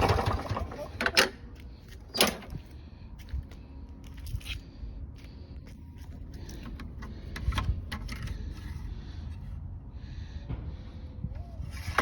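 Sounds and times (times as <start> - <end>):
lawn mower engine turning over: 0.0 - 1.4.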